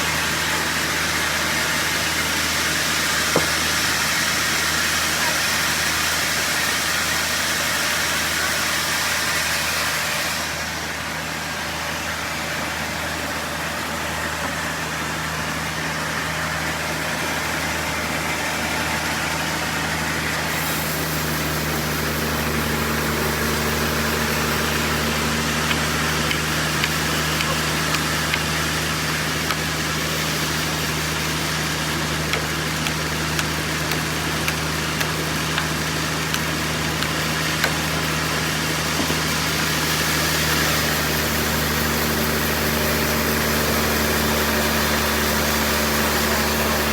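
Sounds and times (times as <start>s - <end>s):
engine drone: 0.0s - 46.9s
hissing sawing noise: 20.4s - 43.6s.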